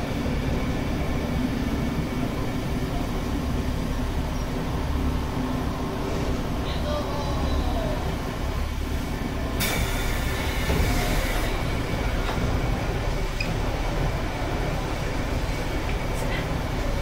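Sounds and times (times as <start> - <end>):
diesel railcar rumble: 0.0 - 17.0
hiss: 9.6 - 11.8.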